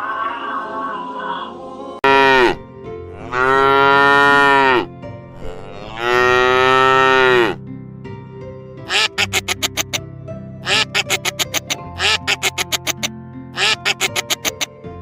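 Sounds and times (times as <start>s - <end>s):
cow mooing: 2.0s - 2.6s, 3.2s - 7.6s.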